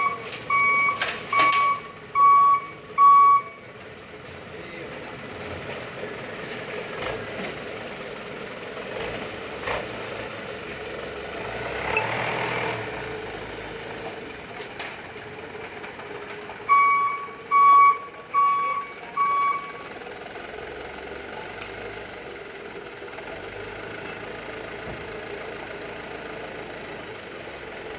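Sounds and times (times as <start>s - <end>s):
reversing alarm beeps: 0.0s - 3.6s, 16.7s - 19.8s
truck engine running: 0.0s - 27.9s.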